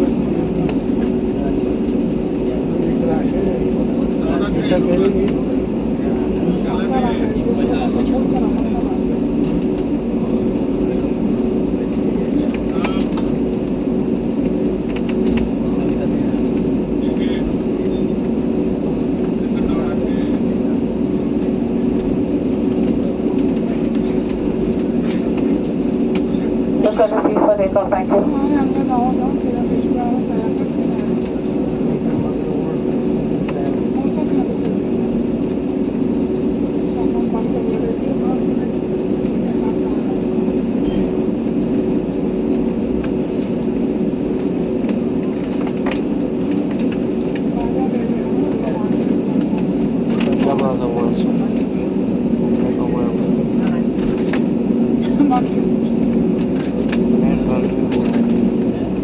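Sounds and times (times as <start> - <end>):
airliner engine drone in cabin: 0.0 - 59.0
constant low hum: 0.0 - 59.0.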